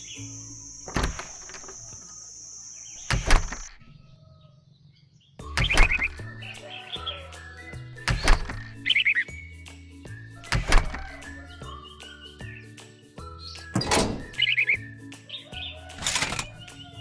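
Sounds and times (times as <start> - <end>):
faint background music: 5.3 - 17.0.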